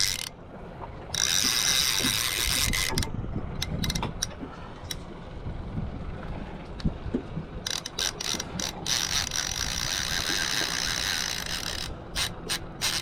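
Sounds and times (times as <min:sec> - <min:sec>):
fishing reel drag buzzing: 0:00.0 - 0:00.3, 0:01.1 - 0:04.0, 0:07.7 - 0:13.0
fishing reel clicks: 0:00.0 - 0:00.4, 0:01.1 - 0:04.3, 0:07.6 - 0:13.0.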